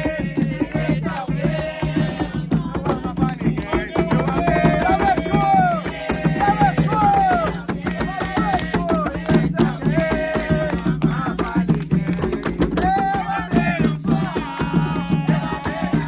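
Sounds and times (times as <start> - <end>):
fast hand drumming: 0.0 - 16.0.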